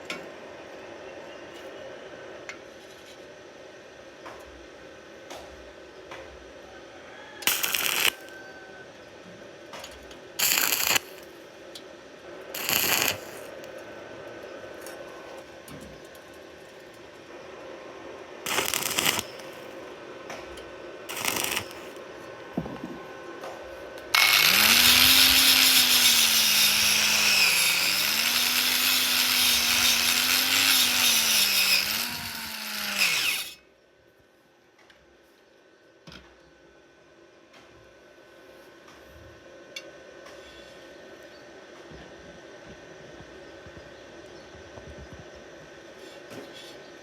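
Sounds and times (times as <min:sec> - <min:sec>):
arc welding bursts: 0:07.4 - 0:08.4, 0:10.4 - 0:11.4, 0:12.5 - 0:13.8, 0:18.4 - 0:19.8, 0:21.1 - 0:22.1, 0:24.1 - 0:33.6.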